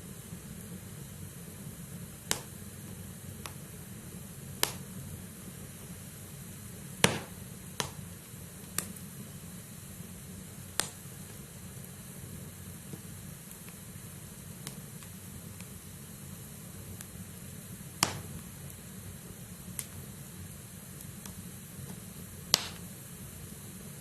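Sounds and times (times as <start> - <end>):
flames rumbling in fireplace: 0.0 - 24.0
firewood crackling and popping: 0.2 - 24.0.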